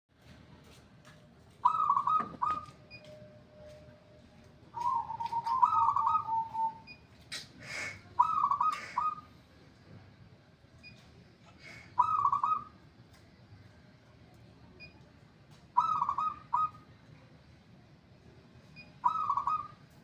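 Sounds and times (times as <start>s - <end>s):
dove cooing: 1.6s - 2.8s, 4.8s - 6.8s, 8.2s - 9.2s, 12.0s - 12.7s, 15.8s - 16.8s, 19.0s - 19.8s.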